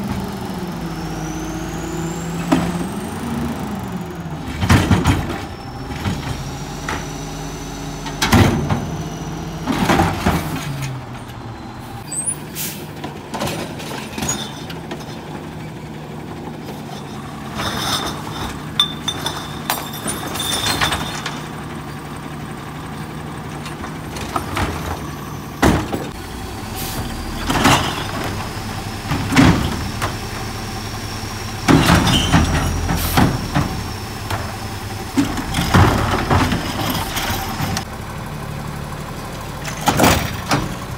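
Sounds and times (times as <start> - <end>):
truck engine and hydraulics running: 0.0 - 40.9
carts banging against metal hopper: 27.3 - 30.4, 31.6 - 37.9.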